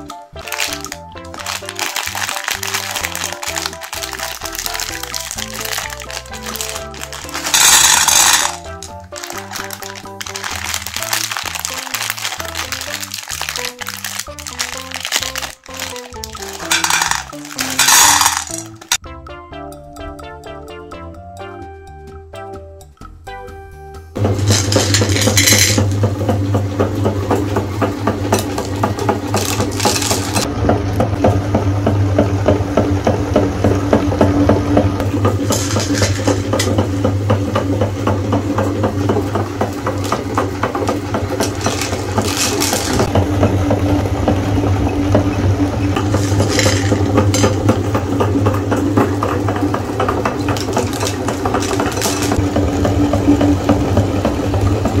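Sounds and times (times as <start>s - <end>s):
meat grinder motor humming: 0.0s - 16.7s, 24.2s - 55.0s
candies rattling and crunching: 0.0s - 19.0s, 24.3s - 26.0s, 28.2s - 30.5s, 35.1s - 37.0s, 38.7s - 43.1s, 45.9s - 52.5s.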